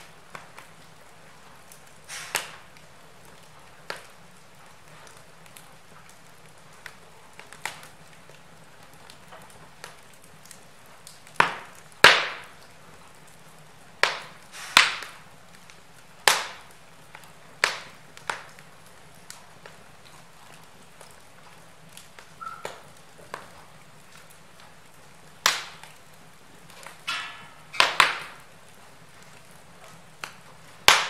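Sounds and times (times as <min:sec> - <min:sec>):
faint fire crackles: 0:00.0 - 0:31.0
fire hissing: 0:00.0 - 0:31.0
loud sharp fire pops: 0:01.7 - 0:02.8, 0:09.1 - 0:12.7, 0:14.0 - 0:19.8, 0:25.4 - 0:26.0, 0:26.6 - 0:28.6, 0:30.2 - 0:31.0.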